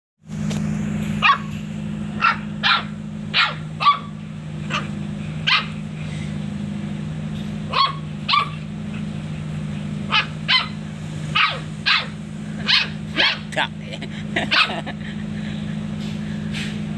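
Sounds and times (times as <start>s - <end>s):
steady low hum: 0.2s - 16.9s
dog barking: 1.2s - 1.5s, 2.2s - 5.8s, 7.7s - 8.7s, 10.1s - 10.8s, 11.4s - 13.5s, 14.5s - 14.8s.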